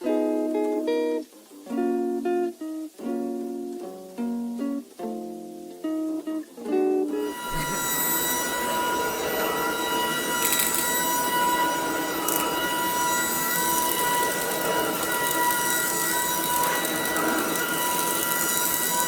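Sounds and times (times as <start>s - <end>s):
stick vacuum running: 7.1s - 19.0s
debris crackling in vacuum: 7.4s - 19.0s.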